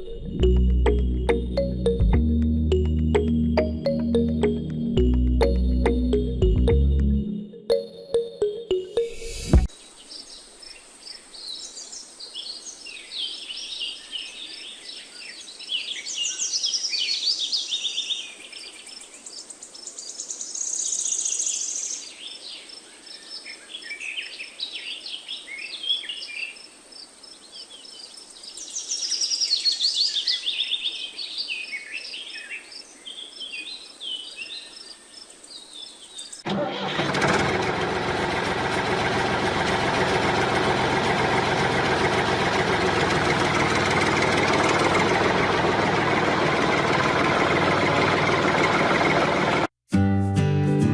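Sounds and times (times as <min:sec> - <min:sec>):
birds singing and chirping: 0:09.2 - 0:26.6, 0:27.4 - 0:36.4
small gasoline engine running: 0:36.5 - 0:49.7.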